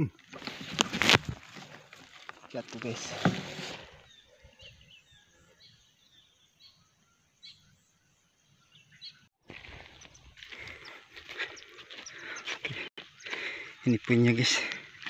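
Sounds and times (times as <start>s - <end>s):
outdoor noise: 0.0s - 15.0s
small birds chirping: 3.8s - 15.0s.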